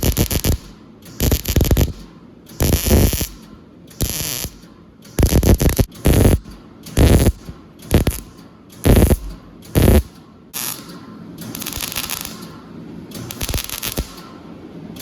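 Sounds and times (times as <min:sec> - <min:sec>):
welding crackle: 0:00.0 - 0:02.0, 0:02.6 - 0:03.4, 0:04.0 - 0:04.6, 0:05.2 - 0:08.2, 0:08.8 - 0:10.9, 0:11.5 - 0:12.5, 0:13.1 - 0:14.2.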